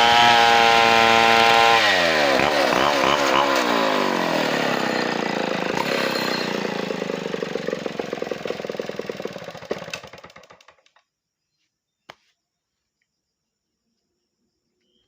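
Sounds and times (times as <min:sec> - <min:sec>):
chainsaw engine winding down: 0:00.0 - 0:11.0.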